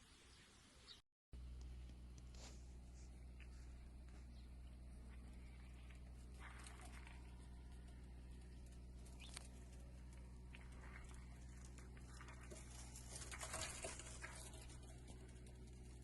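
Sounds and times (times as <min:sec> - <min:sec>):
faint low hum: 0:01.4 - 0:16.0
small chirp-like tones: 0:04.2 - 0:12.4
rustling: 0:05.0 - 0:16.0.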